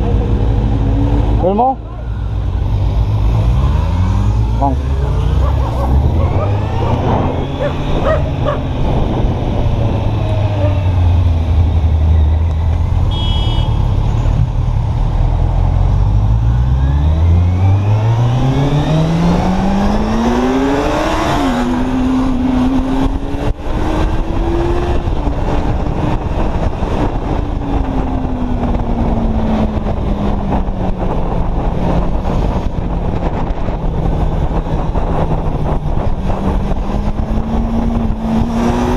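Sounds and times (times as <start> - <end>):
motorcycle engine accelerating: 0.0 - 38.9
wind rush: 3.0 - 12.2, 17.5 - 38.9.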